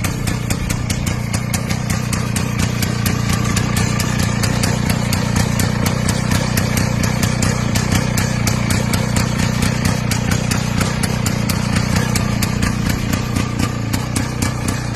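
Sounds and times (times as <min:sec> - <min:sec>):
motorcycle engine idling: 0:00.0 - 0:14.9.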